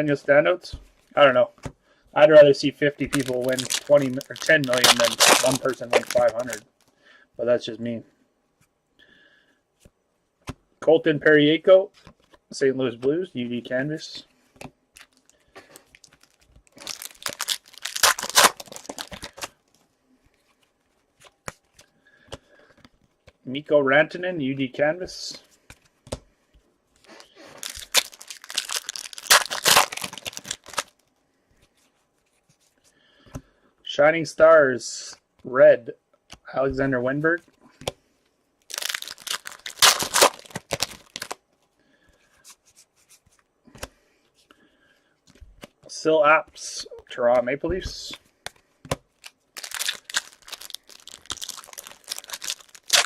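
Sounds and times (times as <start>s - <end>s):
wrapper tearing and crinkling: 3.0s - 6.6s, 15.0s - 19.6s, 27.0s - 31.0s, 38.7s - 41.4s, 49.2s - 53.0s.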